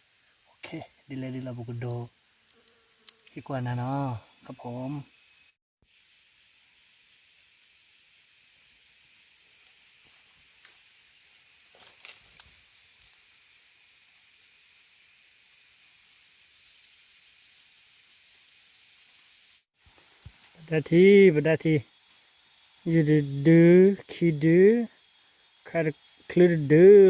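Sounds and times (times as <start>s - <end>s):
cricket chirping: 0.0s - 27.0s.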